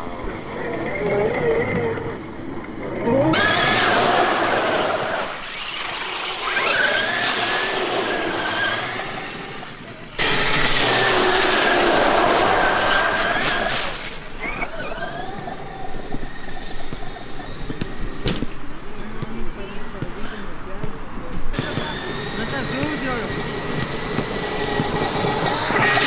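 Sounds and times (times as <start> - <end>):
rc truck motor whining: 3.3 - 20.7, 21.5 - 26.0.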